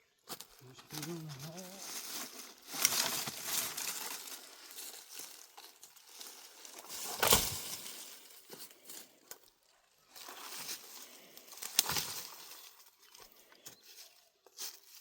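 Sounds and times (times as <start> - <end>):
rustling crinkling handling: 0.3 - 9.5.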